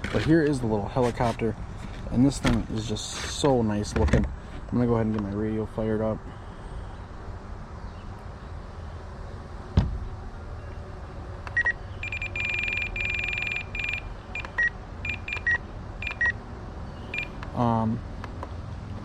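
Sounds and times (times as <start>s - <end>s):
radio transmitter electronic beeps: 11.5s - 16.4s, 17.1s - 17.4s.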